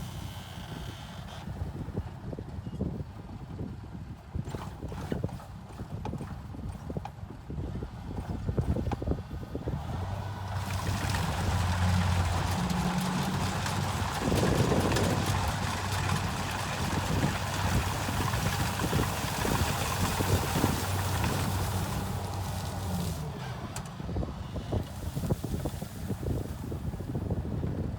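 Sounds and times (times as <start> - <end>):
rushing noise of machine: 0.0 - 1.7
combine harvester engine drone: 0.0 - 2.8, 7.7 - 27.9.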